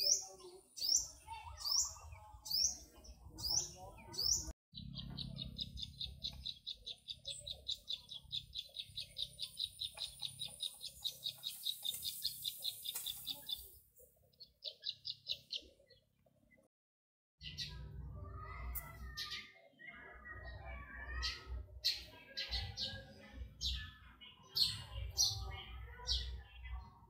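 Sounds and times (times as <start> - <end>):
bird rapid high chirps: 0.0 - 16.0.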